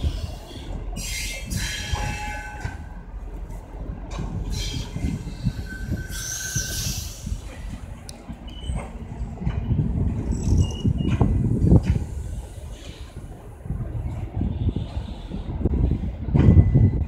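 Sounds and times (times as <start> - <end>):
train coaches rolling past: 0.0 - 17.0
metallic wheel squeals: 4.6 - 7.2, 8.5 - 8.9, 10.2 - 11.2.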